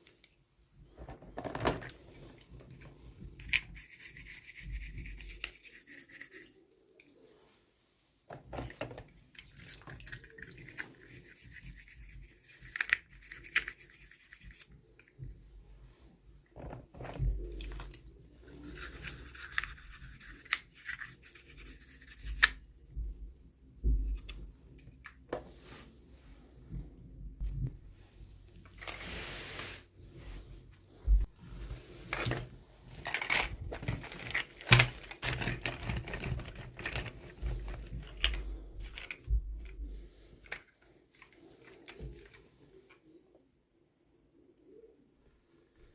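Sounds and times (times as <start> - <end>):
wrapper rustling and tearing: 32.1 - 39.2.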